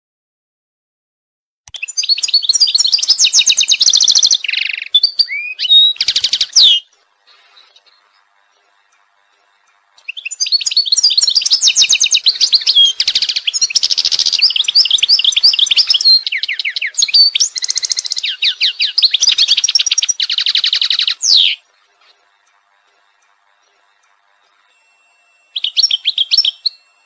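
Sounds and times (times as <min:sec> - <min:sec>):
songbird singing trills: 0:01.7 - 0:27.0.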